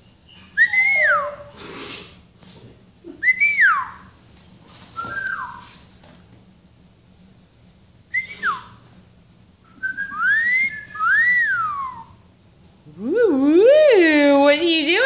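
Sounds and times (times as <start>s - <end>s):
parrot whistling: 0.4s - 1.6s, 5.0s - 5.7s, 9.8s - 12.2s.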